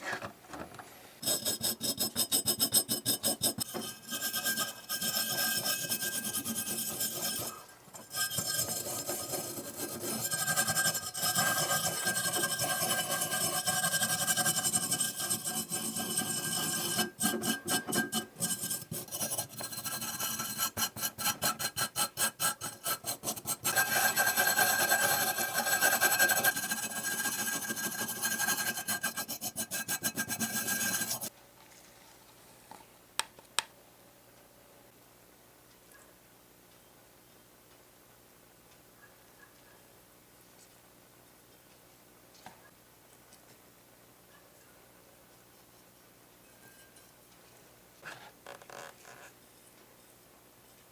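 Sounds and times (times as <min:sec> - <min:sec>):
rasping abrasive rubbing: 0:01.2 - 0:31.3.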